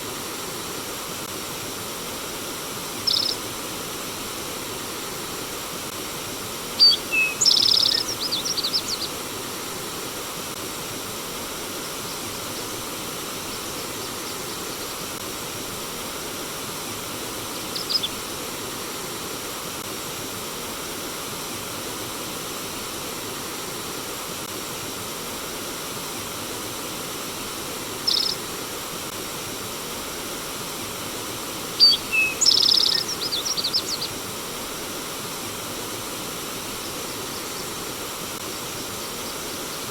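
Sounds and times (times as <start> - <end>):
stream water flowing: 0.0 - 39.9
songbird singing: 3.0 - 3.4, 6.8 - 9.3, 13.4 - 15.1, 17.6 - 18.2, 28.0 - 28.5, 31.7 - 34.2, 36.6 - 37.9, 38.5 - 39.9.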